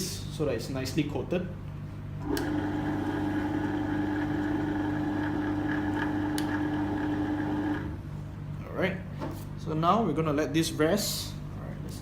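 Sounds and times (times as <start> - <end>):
electric motor humming: 2.2 - 8.0.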